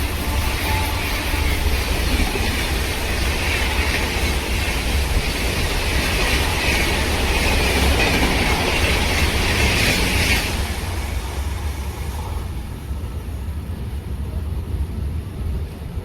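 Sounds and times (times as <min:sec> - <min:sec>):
high hissing rail noise: 0:00.0 - 0:14.4
train wheels rumbling on rails: 0:00.0 - 0:16.0.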